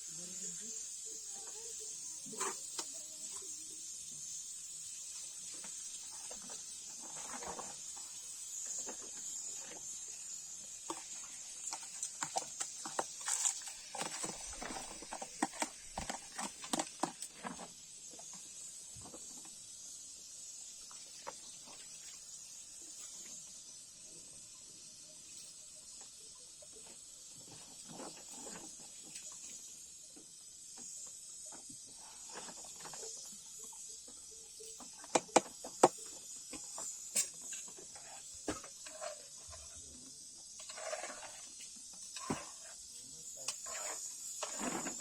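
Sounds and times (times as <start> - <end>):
steady high hiss: 0.0 - 40.8, 41.4 - 45.0
irregular clicks and knocks: 35.1 - 37.3.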